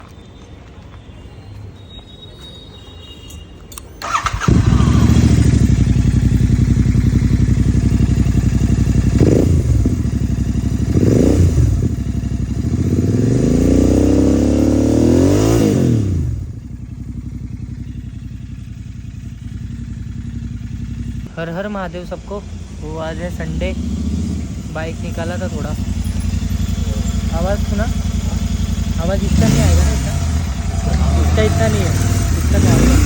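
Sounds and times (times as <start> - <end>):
starter motor cranking: 4.0 - 6.6
motorcycle engine idling and revving: 4.0 - 33.0.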